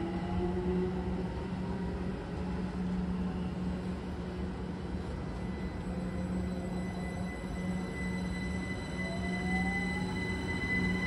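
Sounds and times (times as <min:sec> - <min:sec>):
train running hum: 0:00.0 - 0:11.0
faint high whine: 0:04.8 - 0:11.0.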